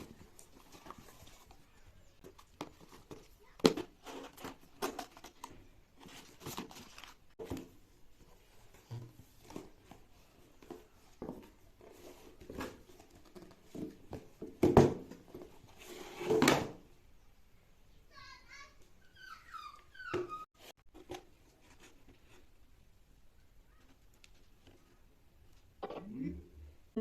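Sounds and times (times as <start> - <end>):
cardboard and plastic rustling: 0.0 - 16.8
scrape: 15.7 - 16.4.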